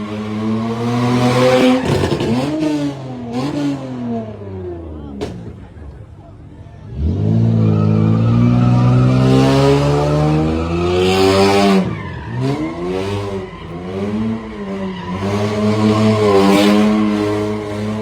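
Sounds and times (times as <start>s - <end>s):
tire squeal: 1.3s - 2.6s, 7.2s - 18.0s
car engine revving hard: 6.9s - 18.0s.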